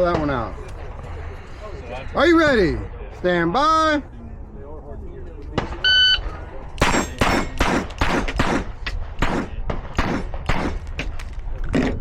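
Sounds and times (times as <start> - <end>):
pistol shots: 6.8 - 11.2.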